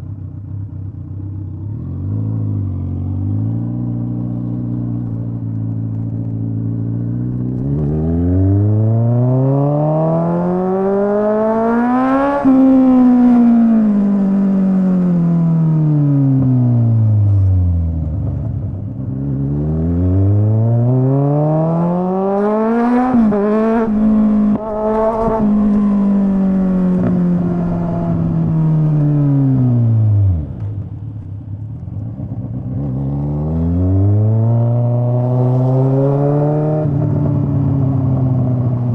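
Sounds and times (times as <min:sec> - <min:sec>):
motorcycle engine revving: 0:00.4 - 0:17.5, 0:18.2 - 0:30.8, 0:32.1 - 0:38.9.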